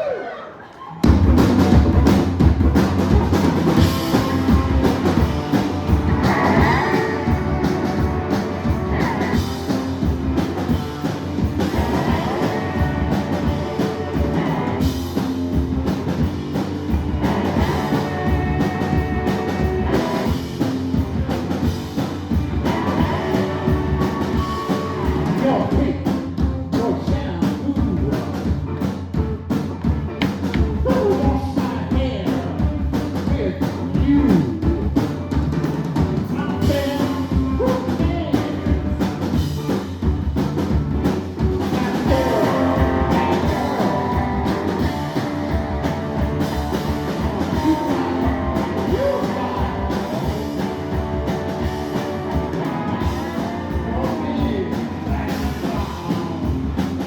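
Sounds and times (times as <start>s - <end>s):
drum kit beat: 1.0s - 57.0s
electric guitar: 1.1s - 26.6s, 28.1s - 57.0s
person singing: 5.9s - 9.8s, 11.6s - 15.0s, 17.0s - 20.4s, 22.6s - 26.1s, 30.8s - 32.6s, 41.7s - 56.6s.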